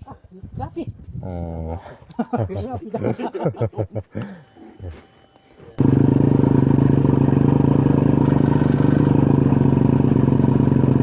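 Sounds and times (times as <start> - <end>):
motorcycle engine running: 5.8 - 11.0.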